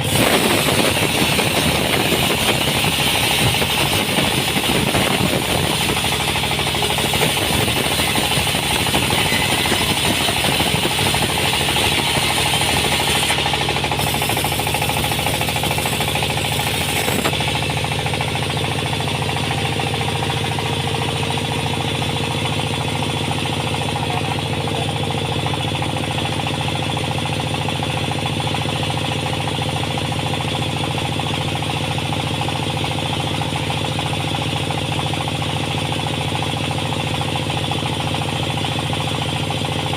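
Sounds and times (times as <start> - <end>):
sawmill machinery running: 0.0 - 39.9
harsh rasping: 15.7 - 17.5.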